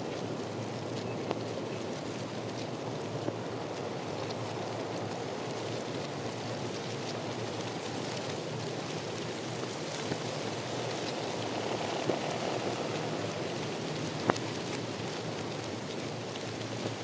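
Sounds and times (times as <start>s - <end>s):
steady rain falling: 0.0s - 17.0s
raindrop hits: 7.4s - 17.0s.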